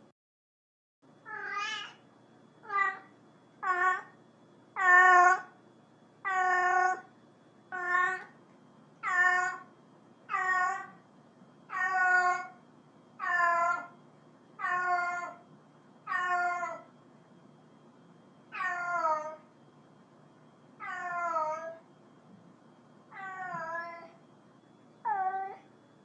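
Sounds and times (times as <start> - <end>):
cat meowing: 1.2 - 2.0, 2.6 - 4.2, 4.8 - 5.5, 6.2 - 7.1, 7.7 - 8.3, 9.0 - 9.7, 10.3 - 11.0, 11.7 - 12.6, 13.2 - 13.9, 14.6 - 15.4, 16.1 - 16.9, 18.5 - 19.4, 20.8 - 21.8, 23.1 - 24.2, 25.0 - 25.7.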